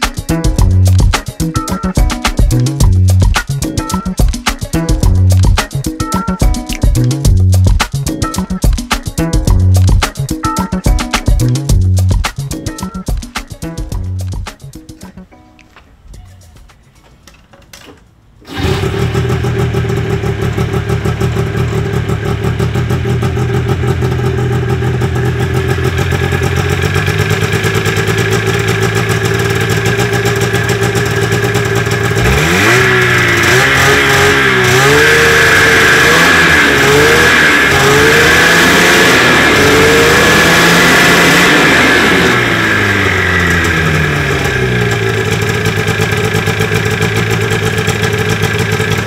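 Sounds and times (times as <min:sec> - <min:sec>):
snowmobile engine revving: 0:18.5 - 0:49.0.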